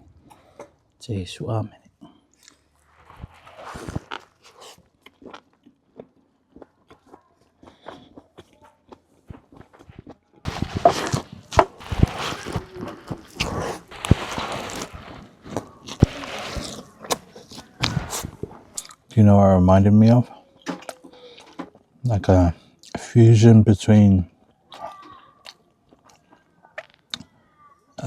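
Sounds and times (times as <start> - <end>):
chewing crunching and rustling: 2.0 - 19.2, 24.4 - 27.3
mouth clicks: 10.5 - 19.2.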